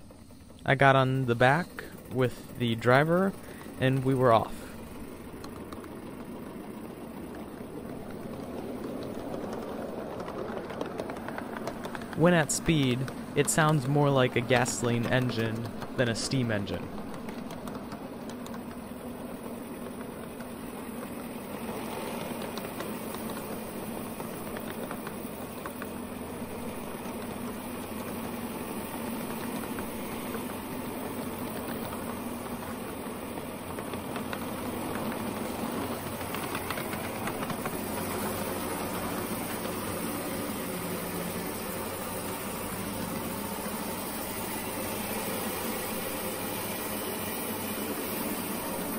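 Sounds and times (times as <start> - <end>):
steam locomotive exhaust beats: 0.0 - 48.9.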